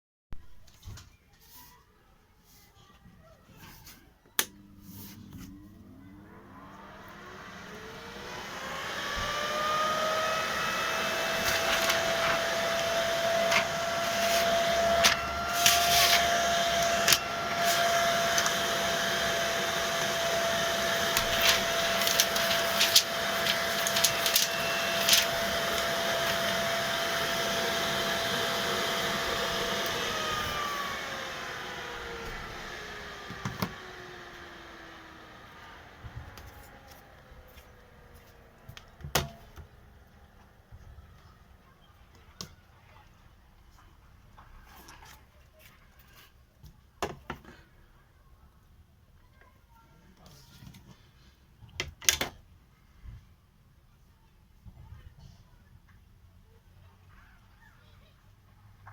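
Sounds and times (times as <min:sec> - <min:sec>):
dust extractor fan whine: 0:04.4 - 0:40.7.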